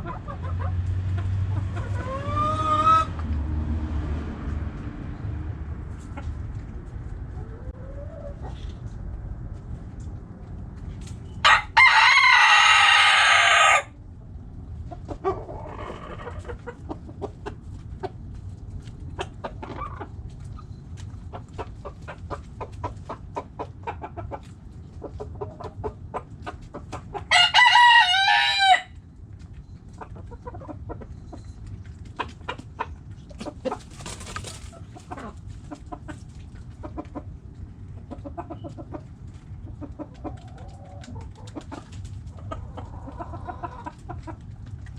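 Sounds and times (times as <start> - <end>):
hens clucking: 0.0 - 3.4, 5.9 - 9.1, 11.5 - 14.0, 14.6 - 28.8, 29.4 - 44.9
rooster crowing: 11.4 - 13.9, 27.3 - 29.0.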